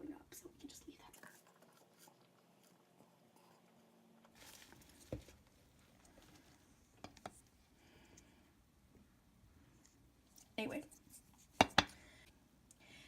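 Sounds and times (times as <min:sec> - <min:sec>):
soft rustle: 0:00.8 - 0:07.7.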